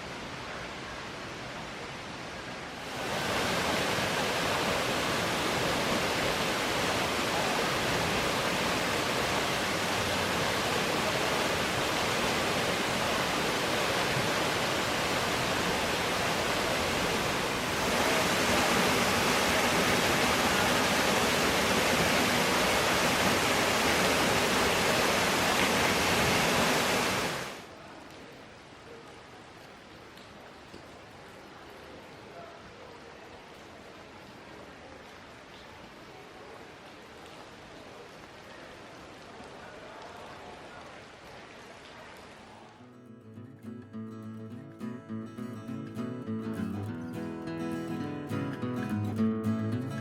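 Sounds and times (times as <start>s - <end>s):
waterfall roaring: 0.1s - 27.8s.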